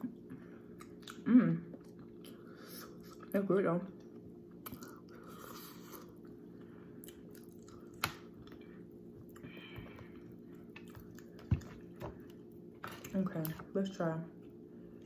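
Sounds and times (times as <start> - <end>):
soft wet chewing: 0.0 - 13.7
faint steady hum: 0.0 - 15.0.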